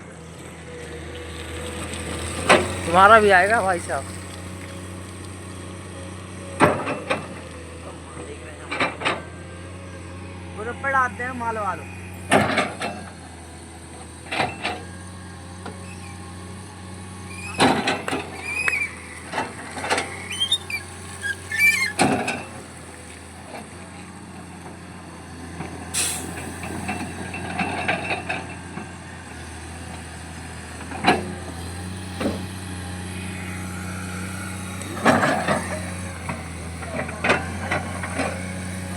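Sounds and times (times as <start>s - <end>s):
diesel engine running: 0.0s - 38.9s
digger clanks and knocks: 2.3s - 3.9s, 6.6s - 9.4s, 12.2s - 16.1s, 17.4s - 24.8s, 25.5s - 38.9s
short high squeals: 15.8s - 16.2s, 17.2s - 23.1s.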